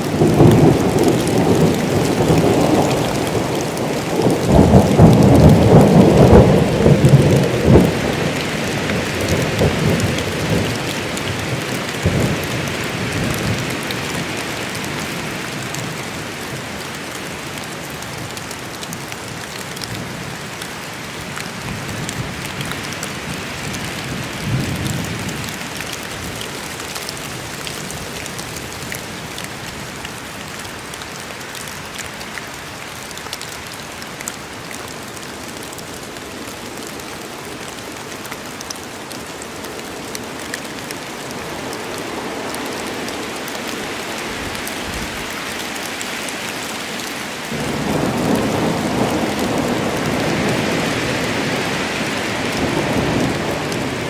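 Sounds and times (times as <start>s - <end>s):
thunder rumbling: 0.0s - 13.8s, 47.5s - 54.0s
rain falling steadily: 0.0s - 54.0s.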